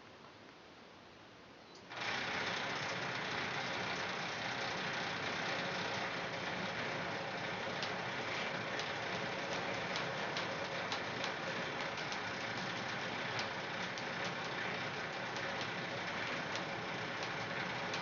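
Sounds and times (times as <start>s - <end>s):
engine running: 1.9s - 18.0s
light ticks: 7.8s - 8.0s, 16.5s - 18.0s.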